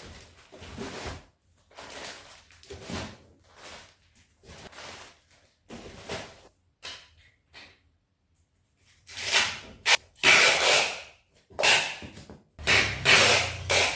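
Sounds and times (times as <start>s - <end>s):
objects scraping and rustling: 0.0s - 6.5s, 12.6s - 13.9s.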